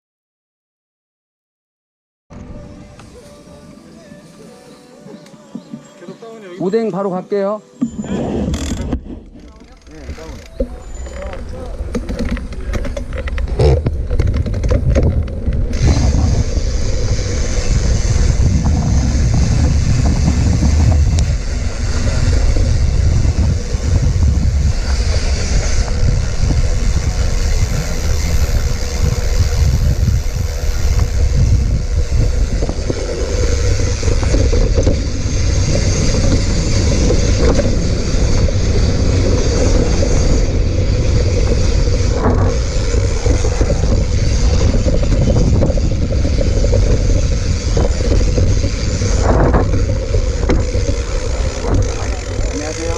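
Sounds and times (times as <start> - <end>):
wind rumble on microphone: 7.8 - 52.9
bike rattling over ground: 7.9 - 52.9
sharp clicks and knocks: 8.6 - 16.2, 44.6 - 52.2.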